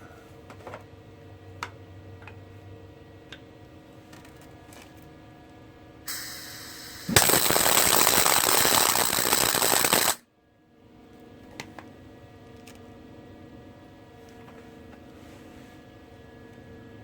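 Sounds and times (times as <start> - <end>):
welder arc crackling: 6.1 - 10.2.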